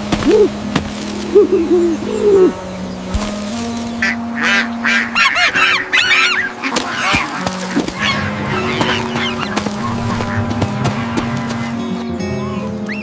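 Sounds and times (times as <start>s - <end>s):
duck quacking: 4.0s - 13.0s.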